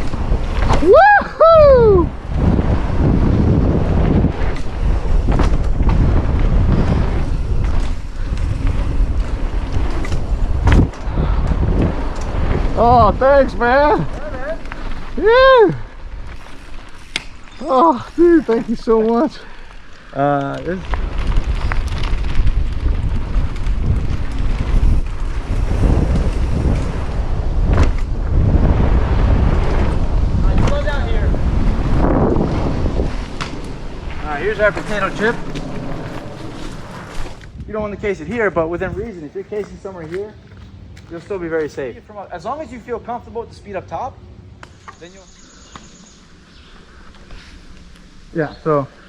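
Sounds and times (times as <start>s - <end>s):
wind on microphone: 0.0s - 19.4s, 20.2s - 39.7s
bike knocks and rattles: 2.2s - 15.2s, 20.2s - 41.9s.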